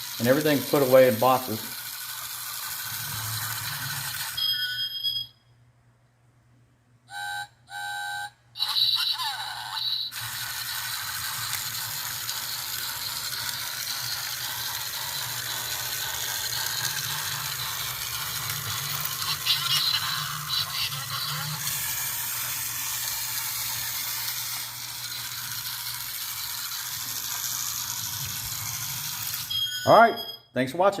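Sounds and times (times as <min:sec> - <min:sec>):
toy train motor running: 0:00.0 - 0:04.8, 0:08.6 - 0:29.9
toy sound effect: 0:00.0 - 0:05.3, 0:07.1 - 0:30.4
toy train whistle toots: 0:07.1 - 0:10.3.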